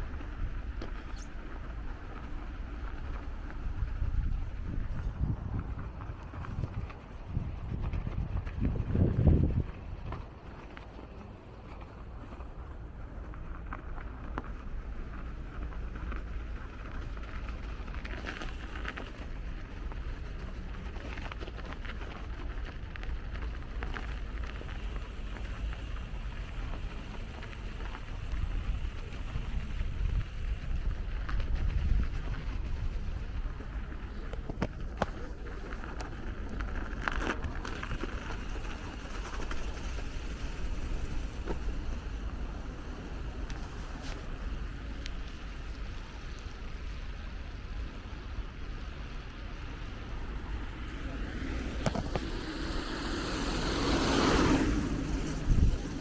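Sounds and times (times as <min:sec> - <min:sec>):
bicycle tyre noise: 0:00.0 - 0:56.0
street traffic rumble: 0:00.0 - 0:56.0
wind buffeting microphone: 0:00.0 - 0:56.0
rising hiss: 0:50.3 - 0:56.0.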